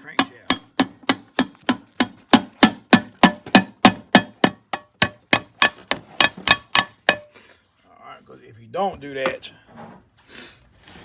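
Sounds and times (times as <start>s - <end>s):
hammer tapping on metal cover: 0.0s - 7.3s.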